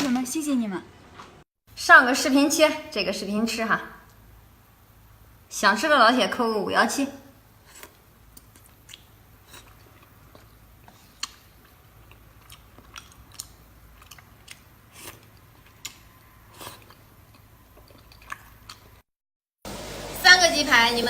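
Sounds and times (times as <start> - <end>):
person chewing crunchy food: 7.6 - 19.0.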